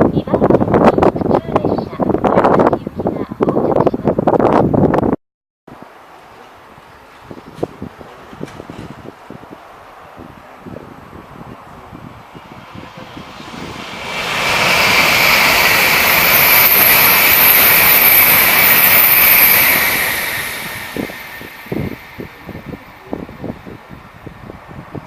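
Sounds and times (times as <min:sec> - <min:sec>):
wind buffeting microphone: 0:00.0 - 0:06.0, 0:06.6 - 0:25.0
high-speed train passing: 0:05.7 - 0:25.0.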